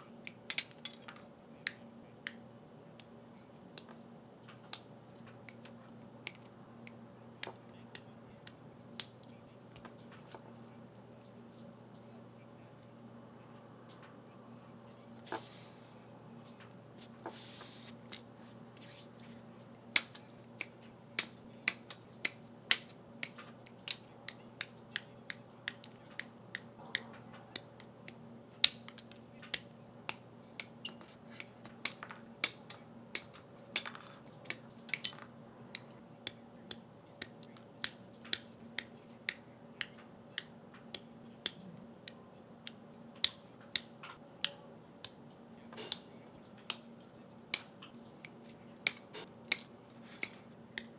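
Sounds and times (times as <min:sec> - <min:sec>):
faint steady hum: 0:00.0 - 0:50.9
plastic clicks and snaps: 0:03.8 - 0:12.1, 0:19.7 - 0:50.9.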